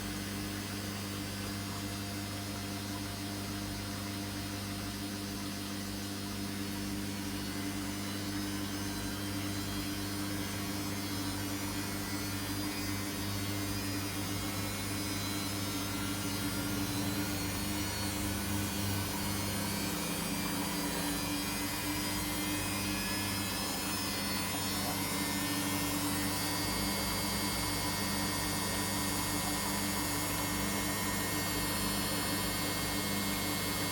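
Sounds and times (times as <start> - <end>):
washing machine motor hum: 0.0 - 33.9.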